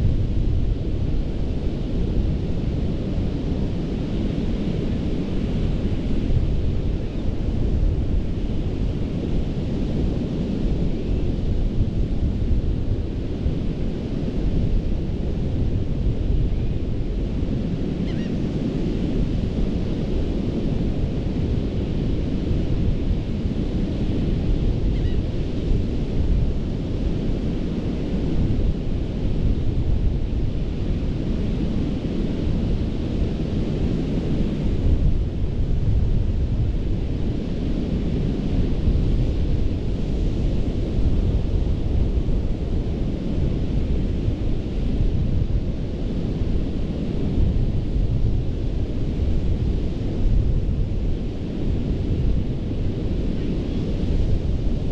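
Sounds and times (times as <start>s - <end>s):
wind rumble on microphone: 0.0s - 54.9s.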